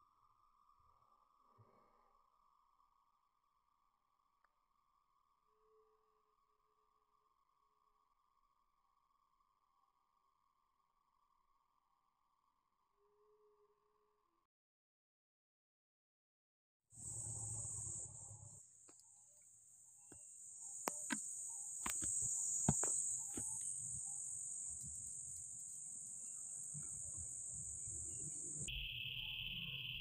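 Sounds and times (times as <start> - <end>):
insects trilling: 17.0 - 30.0
low insect buzz: 17.0 - 30.0
sharp clicks: 20.8 - 23.7.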